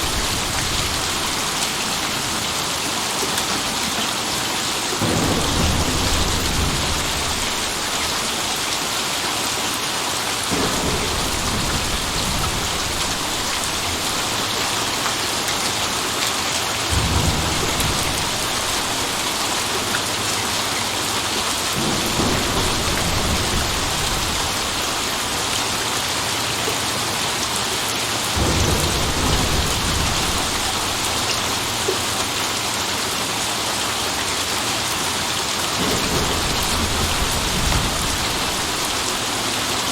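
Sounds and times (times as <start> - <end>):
thunder rumbling: 0.0 - 2.4, 5.0 - 9.6, 10.3 - 26.3, 28.3 - 32.4, 35.7 - 39.9
steady rain: 0.0 - 39.9.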